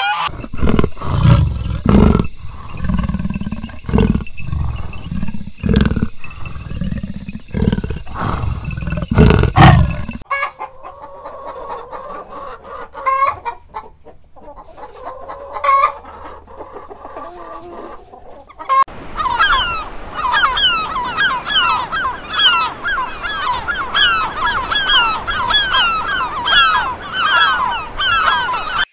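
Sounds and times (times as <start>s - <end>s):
hen squawks: 0.0s - 0.9s, 18.6s - 28.9s
hens clucking: 0.0s - 28.9s
big cat growling: 0.3s - 10.2s
gulls calling: 15.1s - 28.9s.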